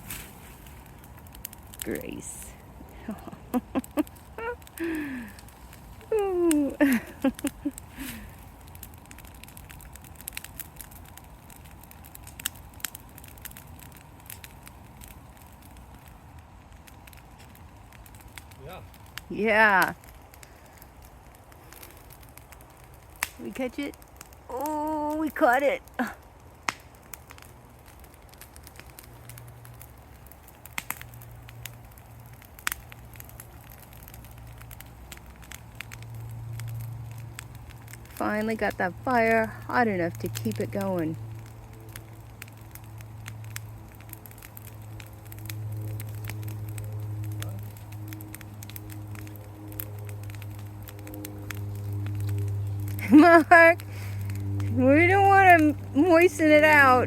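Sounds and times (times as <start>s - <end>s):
fire crackling: 0.0s - 57.0s
low steady rumble: 0.0s - 57.0s
low rumble: 41.2s - 57.0s.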